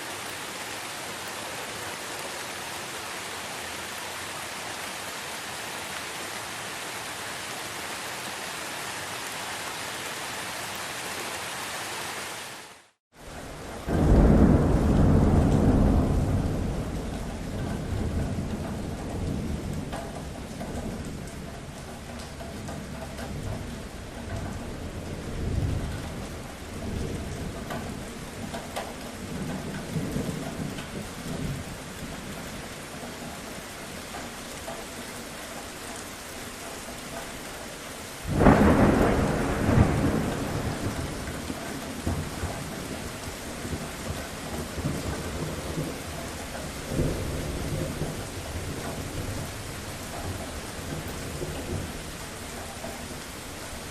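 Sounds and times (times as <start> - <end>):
steady rain: 0.0 - 53.9
rolling thunder: 13.6 - 32.4, 38.2 - 52.1
loud thunderclap: 13.8 - 21.2, 38.3 - 46.0.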